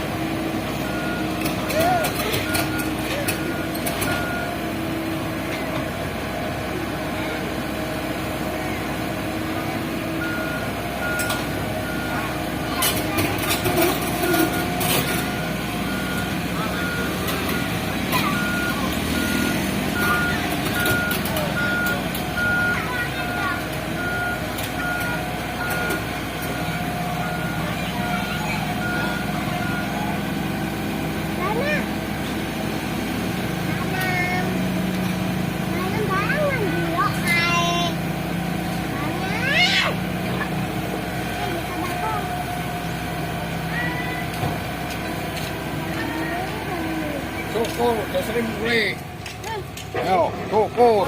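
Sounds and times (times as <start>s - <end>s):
truck engine running: 0.0s - 51.0s
reversing beeper: 0.8s - 4.8s, 10.2s - 12.4s, 13.8s - 30.4s.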